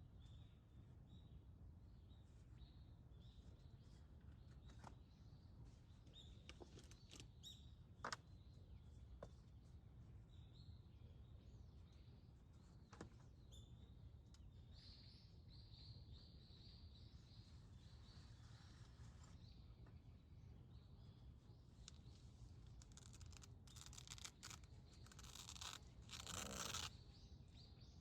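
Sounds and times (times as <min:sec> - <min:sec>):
low outdoor background hum: 0:00.0 - 0:28.0
faint bird chirps: 0:10.2 - 0:28.0.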